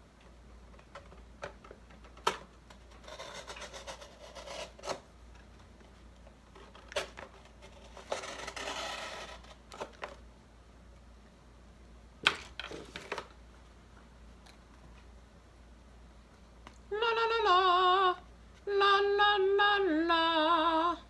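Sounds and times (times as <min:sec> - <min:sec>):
cardboard being cut scraping: 0:07.6 - 0:09.6.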